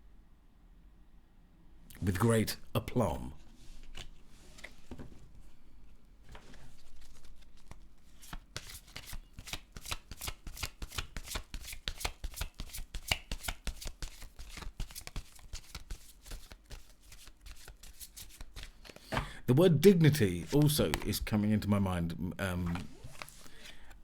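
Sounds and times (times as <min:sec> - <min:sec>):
cards being shuffled: 0:03.8 - 0:05.2, 0:06.3 - 0:19.2, 0:20.2 - 0:21.3, 0:22.6 - 0:24.0.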